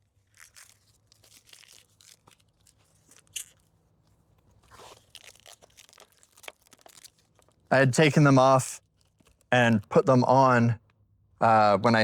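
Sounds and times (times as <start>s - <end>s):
backing film peeling off tape: 4.6s - 7.6s.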